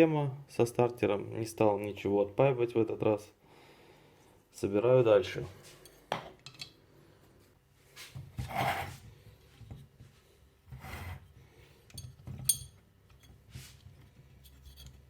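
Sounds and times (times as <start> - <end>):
ringing metal clink: 12.0 - 12.8.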